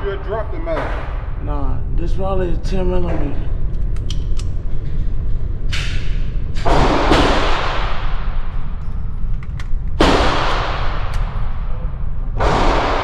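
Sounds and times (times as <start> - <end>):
gunshots with echo: 0.0 - 1.4, 6.6 - 8.8, 10.0 - 13.0.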